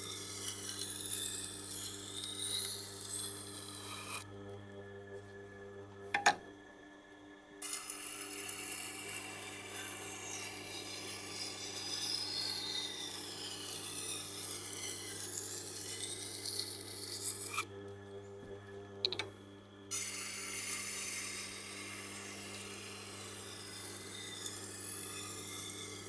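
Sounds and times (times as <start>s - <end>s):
knife grinding on stone: 0.0s - 4.2s, 7.6s - 17.7s, 20.0s - 26.0s.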